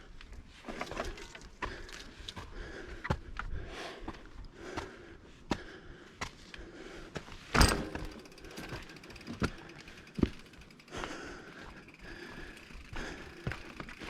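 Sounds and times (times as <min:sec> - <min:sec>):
bicycle clattering over rough trail: 0:00.3 - 0:03.4, 0:07.1 - 0:14.0.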